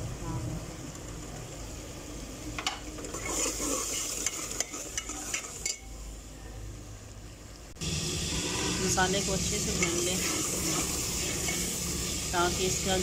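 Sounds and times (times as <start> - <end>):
onion sizzling in ghee: 2.9 - 6.2, 7.7 - 13.0.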